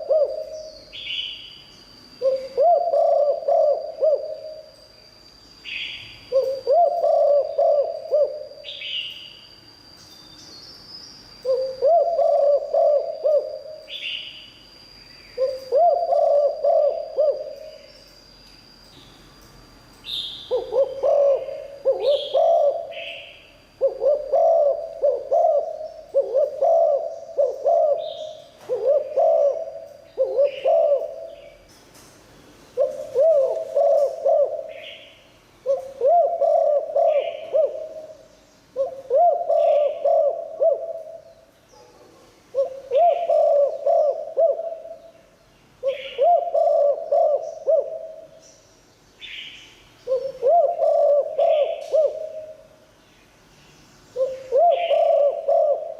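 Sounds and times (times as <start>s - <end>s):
dove cooing: 0.0s - 1.4s, 2.2s - 4.8s, 5.7s - 9.0s, 11.4s - 14.3s, 15.4s - 17.9s, 20.5s - 31.6s, 32.8s - 45.1s, 45.8s - 48.4s, 50.0s - 52.8s, 54.2s - 55.9s.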